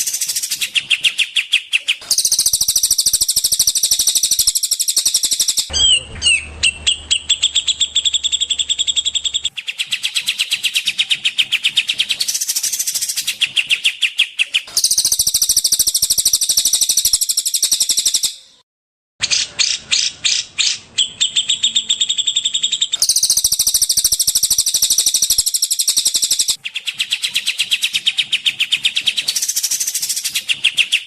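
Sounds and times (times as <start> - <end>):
songbird fast high chirping: 0.0 - 18.5, 19.3 - 31.0.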